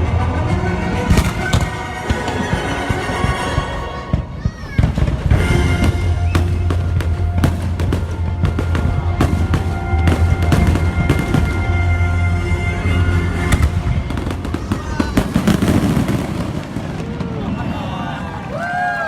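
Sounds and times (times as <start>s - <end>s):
music soundtrack: 0.0s - 16.6s
fireworks bursting and crackling: 1.1s - 12.4s, 13.3s - 18.8s.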